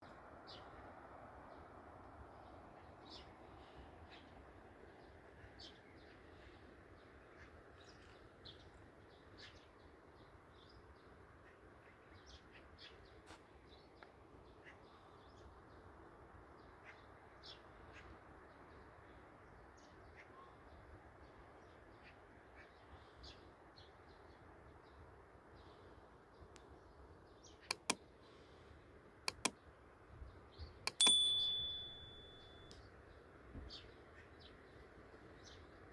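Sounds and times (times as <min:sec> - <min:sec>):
steady outdoor hiss: 0:00.0 - 0:35.9
sharp clicks: 0:27.7 - 0:28.0, 0:29.3 - 0:29.6, 0:30.9 - 0:32.8
faint bird chirps: 0:30.5 - 0:35.8
clear high tone: 0:30.9 - 0:32.7.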